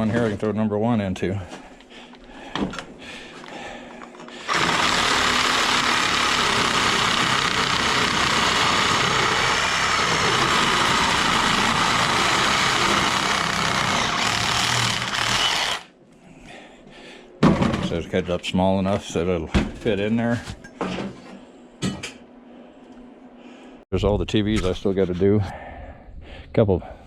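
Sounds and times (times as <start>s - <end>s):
power tool cutting metal: 4.5s - 15.9s.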